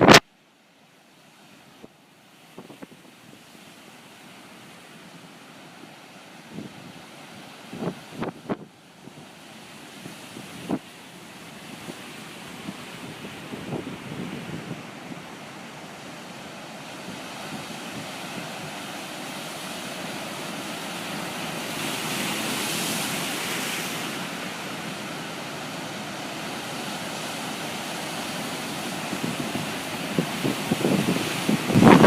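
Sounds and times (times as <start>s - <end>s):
storm waves breaking on shore: 0.0s - 32.0s
wind buffeting microphone: 6.5s - 10.9s, 11.6s - 15.7s, 29.0s - 32.0s.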